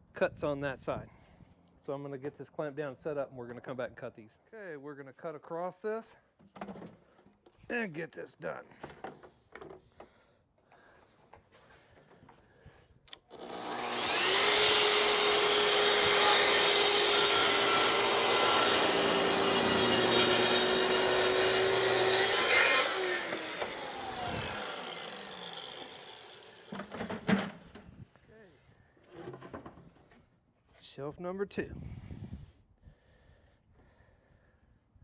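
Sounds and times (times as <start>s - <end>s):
track saw cutting: 13.1s - 27.7s.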